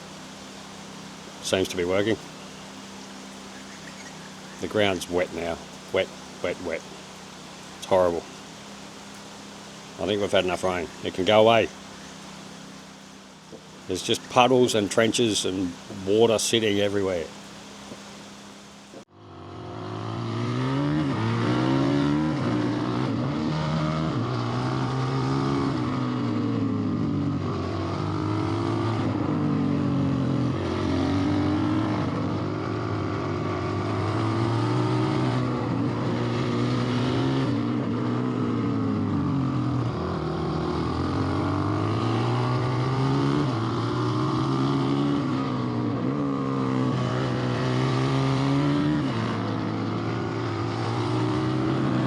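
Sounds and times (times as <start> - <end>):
machine engine running: 0.0 - 19.1.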